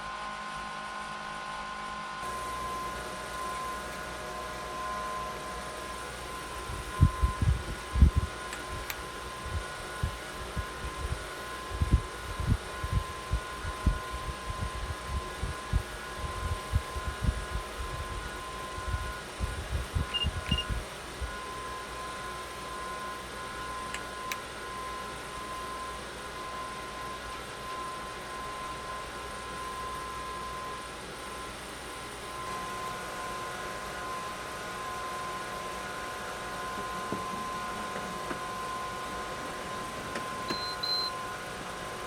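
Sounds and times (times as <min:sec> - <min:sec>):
fan whining: 0:00.0 - 0:42.0
short high beeps: 0:20.1 - 0:20.8, 0:40.5 - 0:41.2.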